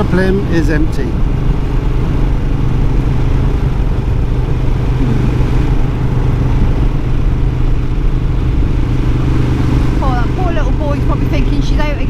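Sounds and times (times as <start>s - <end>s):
motorcycle engine running: 1.2s - 12.0s.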